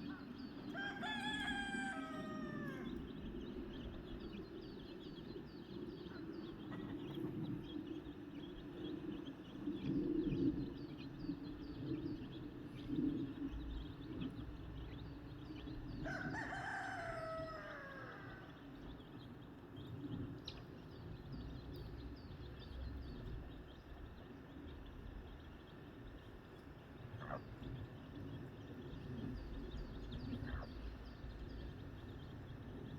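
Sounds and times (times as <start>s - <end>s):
rooster crowing: 0.7s - 3.0s, 16.0s - 18.6s.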